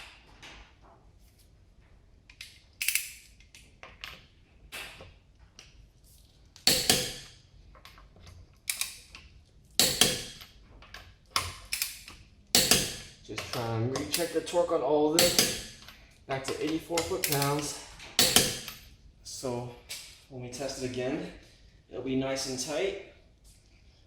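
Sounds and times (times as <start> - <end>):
metallic clicks of torque wrench: 15.2 - 18.8.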